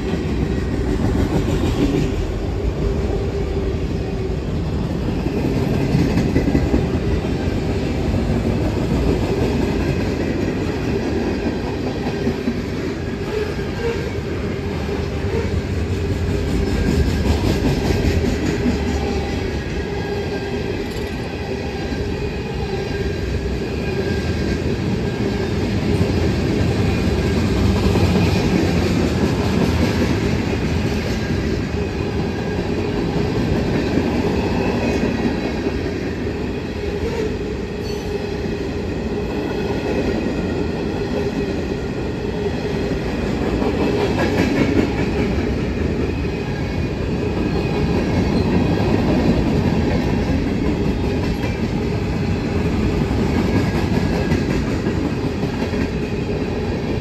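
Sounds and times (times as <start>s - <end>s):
steel wheels running on rails: 0.0s - 57.0s.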